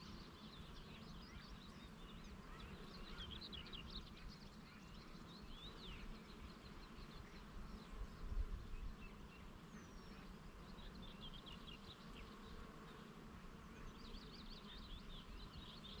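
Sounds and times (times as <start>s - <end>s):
small birds chirping: 0.0s - 16.0s
wind rumble on microphone: 8.0s - 9.0s.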